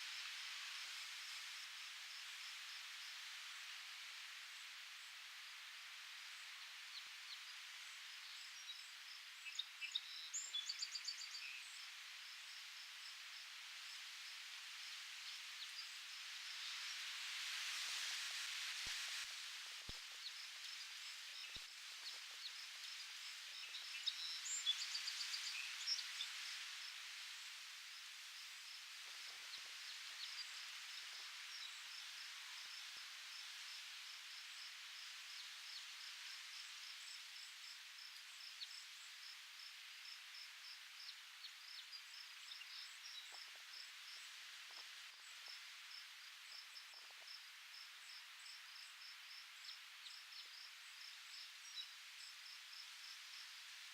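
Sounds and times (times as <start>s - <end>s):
wind in leaves: 0.0s - 53.9s.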